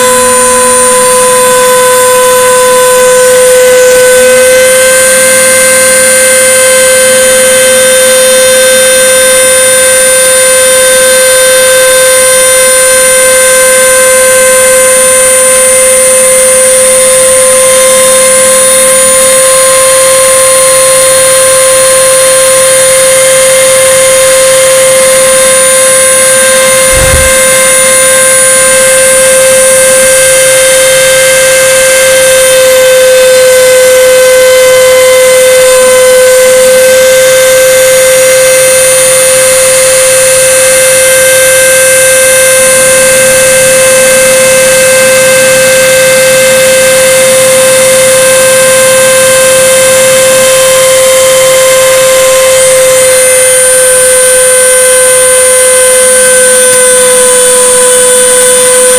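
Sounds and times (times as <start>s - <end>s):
router spindle whining: 0.0s - 20.3s, 22.5s - 41.2s, 44.4s - 58.9s
low knock: 26.9s - 27.6s.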